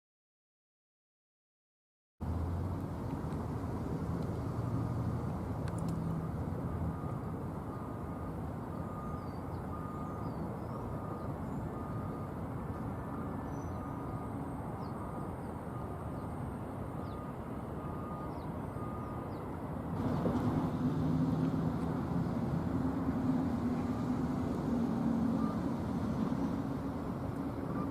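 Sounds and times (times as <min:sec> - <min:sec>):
distant engine rumble: 0:02.2 - 0:27.9
loud engine: 0:19.9 - 0:27.9.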